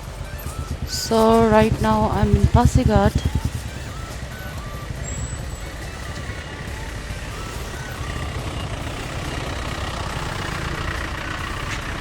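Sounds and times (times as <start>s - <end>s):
faint music: 0.0s - 12.0s
vehicle engine rumble: 0.0s - 12.0s.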